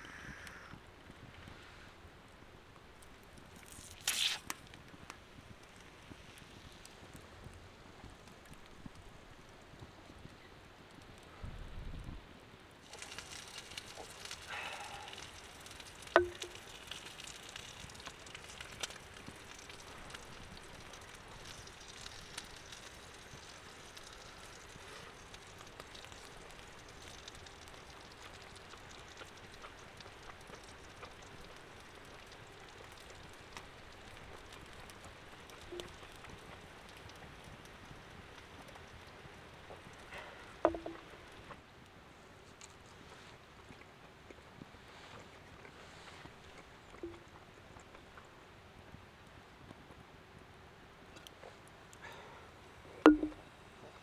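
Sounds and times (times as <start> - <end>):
campfire crackling: 0.0 - 11.3, 12.6 - 41.6
sharp knocks of wood: 40.7 - 41.0.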